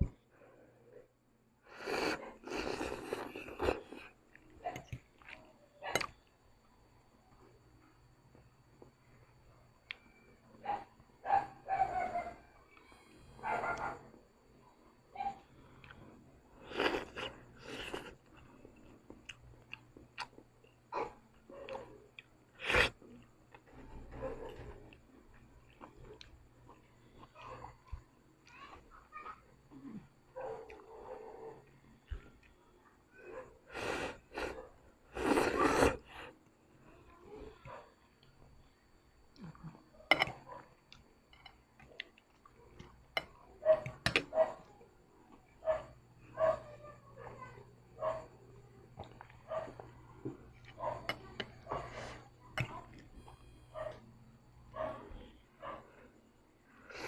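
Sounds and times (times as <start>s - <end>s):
person chewing noodles: 1.7s - 5.4s, 16.6s - 20.8s, 33.7s - 36.3s.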